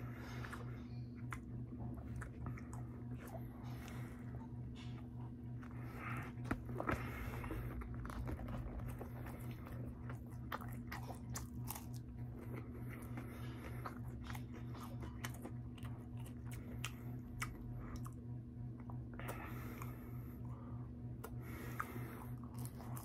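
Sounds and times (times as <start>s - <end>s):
steady low hum: 0.0s - 23.0s
crisp crunching of fries: 5.6s - 18.2s, 21.2s - 23.0s.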